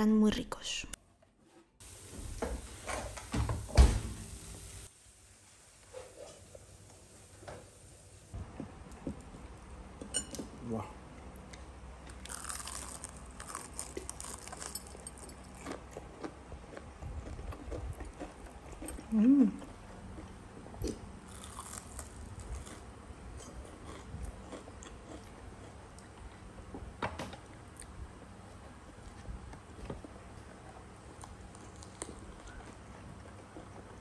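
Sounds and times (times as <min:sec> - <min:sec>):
soft chewing: 0:11.3 - 0:26.4, 0:27.6 - 0:34.0
crunching bites: 0:12.2 - 0:14.9, 0:20.8 - 0:22.8
person humming: 0:19.1 - 0:19.6.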